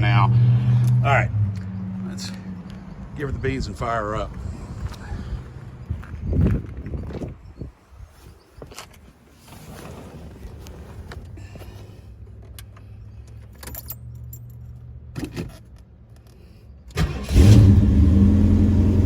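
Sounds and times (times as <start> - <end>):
keys rattling: 13.3 - 14.8
car engine starting and idling: 16.9 - 19.0.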